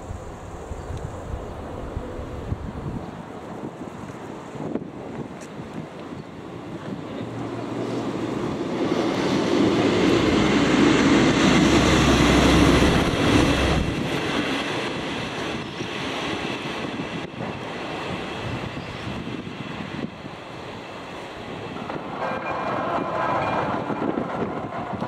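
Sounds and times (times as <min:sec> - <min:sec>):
diesel railcar passing: 0:00.0 - 0:25.0
crossing warning bell ringing: 0:21.8 - 0:24.2.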